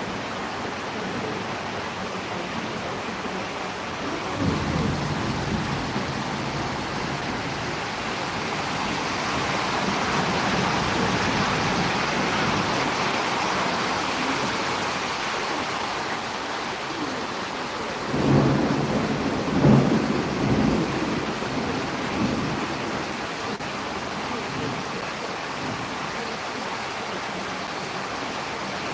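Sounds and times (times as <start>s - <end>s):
steady rain: 0.0s - 28.9s
thunder rumbles: 4.0s - 13.2s, 18.0s - 23.6s.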